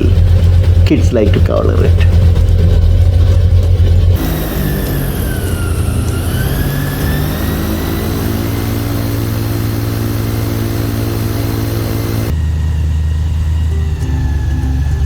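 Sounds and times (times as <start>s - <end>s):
airboat engine and propeller: 0.0s - 15.0s
low hum: 0.0s - 15.0s.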